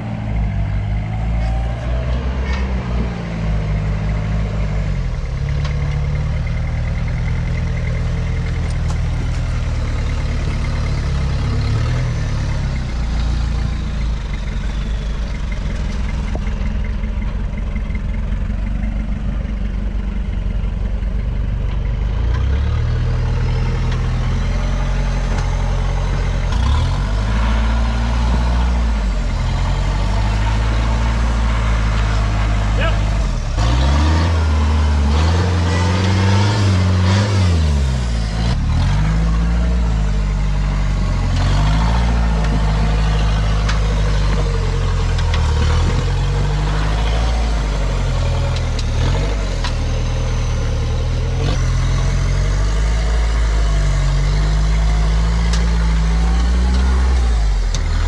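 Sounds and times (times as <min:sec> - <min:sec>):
engine pulling under load: 0:00.0 - 0:58.0.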